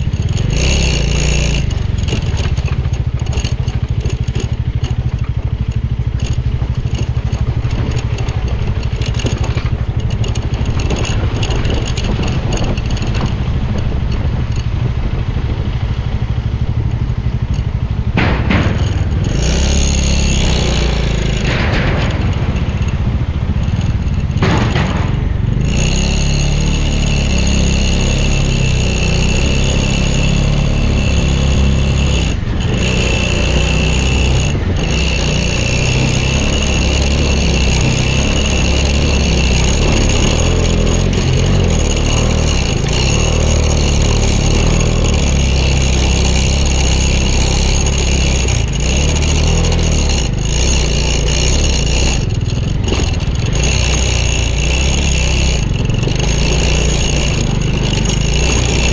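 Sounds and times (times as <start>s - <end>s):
wind noise: 0.0s - 26.1s
motorcycle engine running: 0.0s - 58.9s
road noise: 0.0s - 58.9s.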